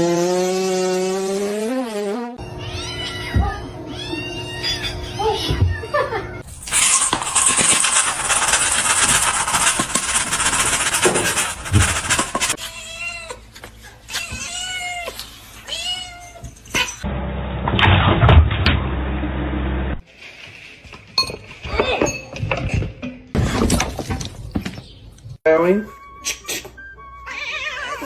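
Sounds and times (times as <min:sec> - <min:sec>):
cat meowing: 0:27.2 - 0:28.0.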